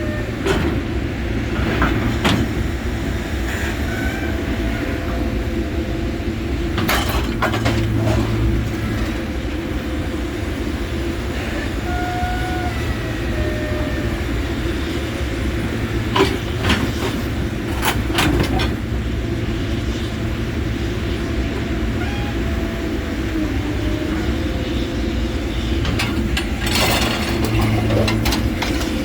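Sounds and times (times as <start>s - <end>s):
heavy machine engine running: 0.0s - 29.0s
faint squeals: 3.4s - 5.5s, 11.2s - 18.1s, 20.8s - 29.0s
metal clanks: 25.8s - 29.0s.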